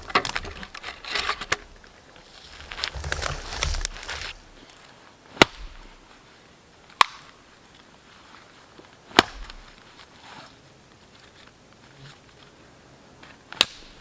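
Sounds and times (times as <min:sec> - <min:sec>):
axe chopping wood: 0:05.4 - 0:05.9, 0:07.0 - 0:07.3, 0:09.1 - 0:09.8, 0:13.6 - 0:14.0.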